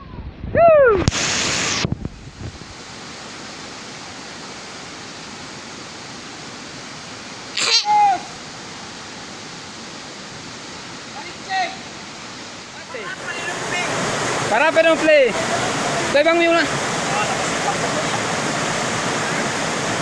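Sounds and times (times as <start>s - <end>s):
river water rushing: 1.1s - 20.0s
person shouting call: 7.6s - 8.4s.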